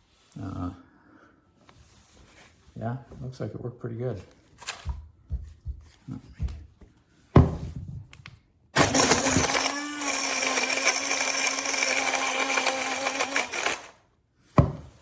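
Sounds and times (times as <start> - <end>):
blender motor running: 8.8 - 14.0
knock: 14.6 - 14.9.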